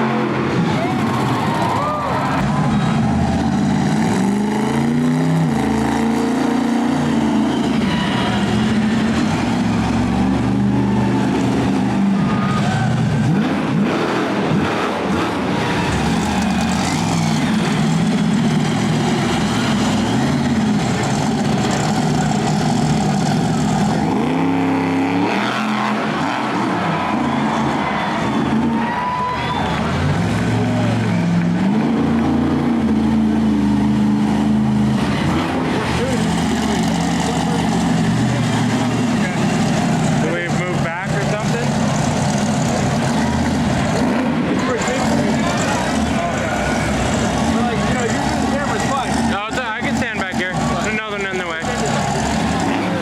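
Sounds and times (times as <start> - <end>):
monster truck engine revving: 0.0 - 53.0.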